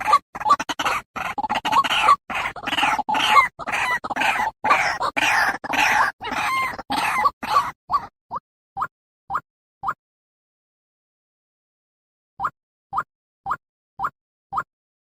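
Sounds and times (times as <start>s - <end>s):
bird calling with harsh croaks: 0.0s - 8.1s.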